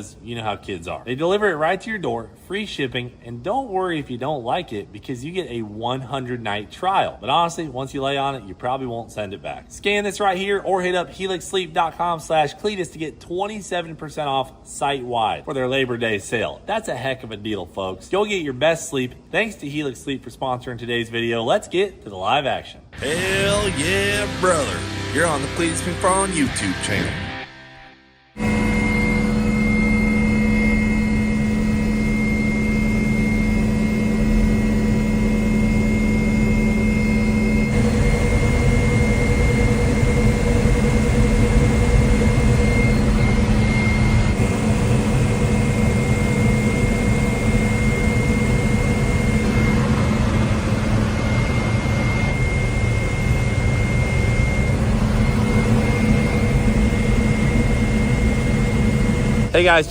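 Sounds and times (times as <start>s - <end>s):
gas turbine engines whining: 22.8s - 59.9s.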